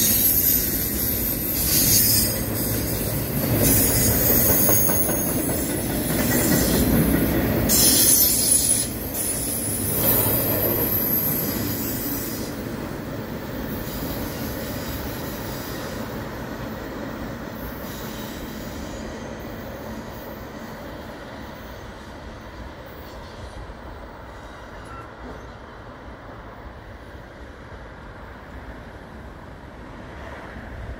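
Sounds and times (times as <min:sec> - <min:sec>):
freight train rolling on rails: 0:00.0 - 0:30.9.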